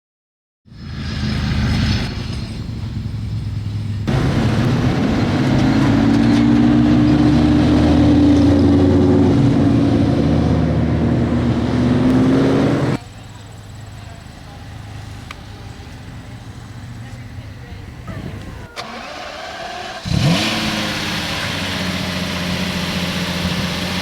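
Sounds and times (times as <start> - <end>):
loud sports car engine: 0.8 - 17.2, 18.8 - 24.0.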